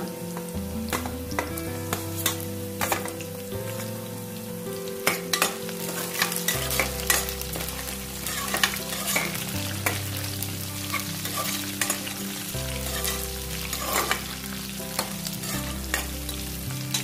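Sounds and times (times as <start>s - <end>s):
food sizzling in hot oil: 0.0s - 17.0s
metal ladle scraping pan: 5.0s - 10.0s, 10.8s - 12.2s, 12.8s - 14.4s.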